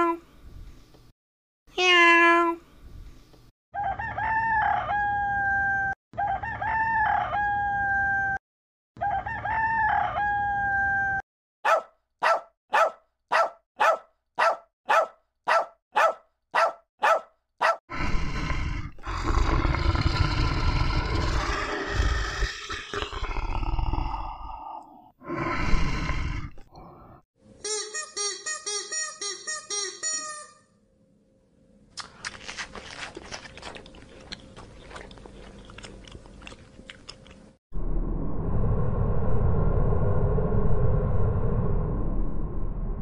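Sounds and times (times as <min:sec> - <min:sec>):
rooster crowing: 0:03.8 - 0:08.4, 0:09.0 - 0:11.2
dog barking: 0:11.6 - 0:17.8
lion growling roar: 0:17.9 - 0:26.6.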